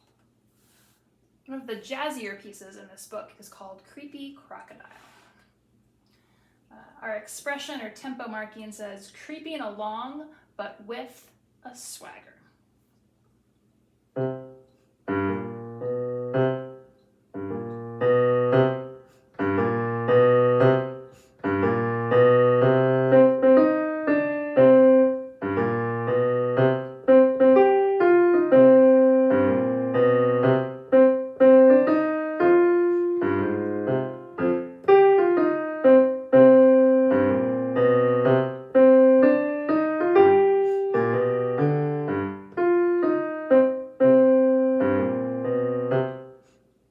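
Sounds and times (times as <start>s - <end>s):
solo jazzy piano piece: 14.1s - 46.6s.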